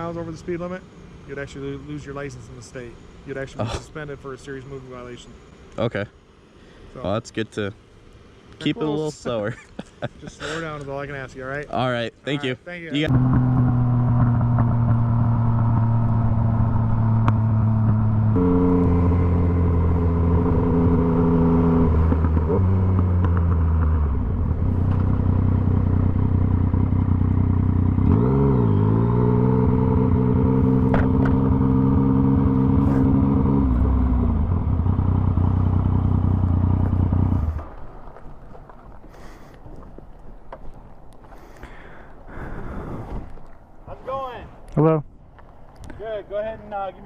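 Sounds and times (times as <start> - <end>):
motorcycle engine changing gear: 13.1 - 37.8.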